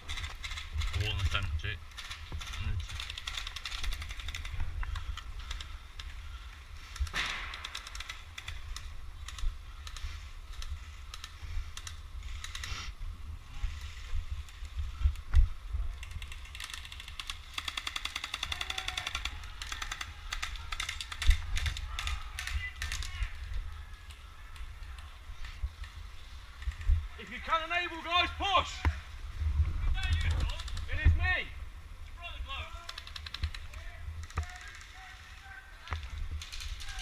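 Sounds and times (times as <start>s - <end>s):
airsoft guns firing: 7.0s - 8.8s, 16.6s - 23.3s.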